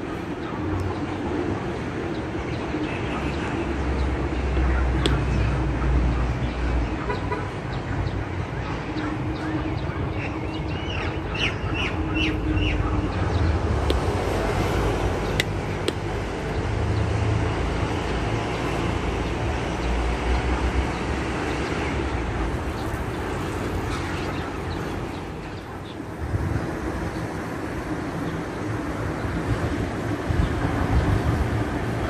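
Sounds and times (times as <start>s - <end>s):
steady low rumble: 0.0s - 32.0s
bird chirping: 2.1s - 14.1s
sharp clicks: 15.3s - 16.1s.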